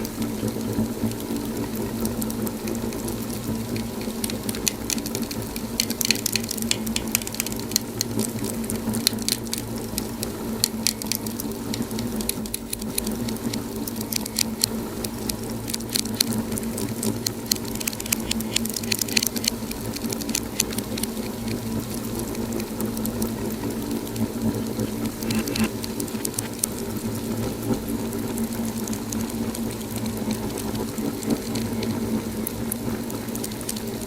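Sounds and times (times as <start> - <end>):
steady low hum: 0.0 - 34.0
wood fire crackling and popping: 0.0 - 34.0.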